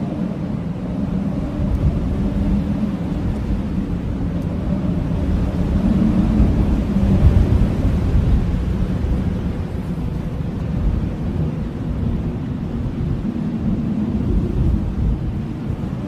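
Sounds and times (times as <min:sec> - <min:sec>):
blizzard wind gusting: 0:00.0 - 0:16.0
low howling wind tone: 0:00.0 - 0:16.0.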